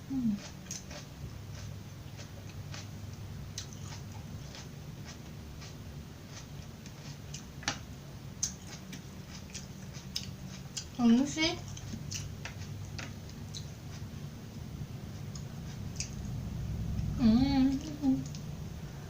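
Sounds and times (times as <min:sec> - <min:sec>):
chewing raw vegetables: 0:00.0 - 0:07.8, 0:08.4 - 0:14.2, 0:15.1 - 0:16.4
low steady hum: 0:00.0 - 0:19.0.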